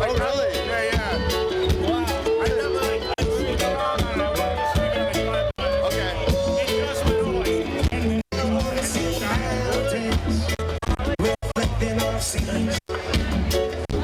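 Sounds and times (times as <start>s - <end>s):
reggae band playing live: 0.0s - 14.0s.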